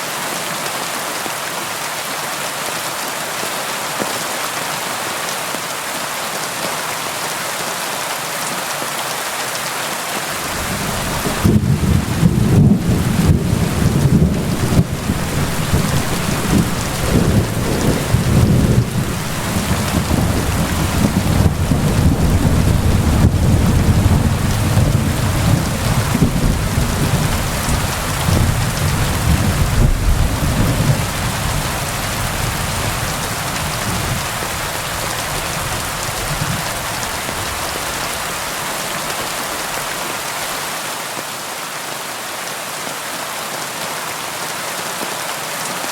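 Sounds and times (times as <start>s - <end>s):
rain on a tin roof: 0.0s - 45.9s
thunder rolling: 10.4s - 34.3s.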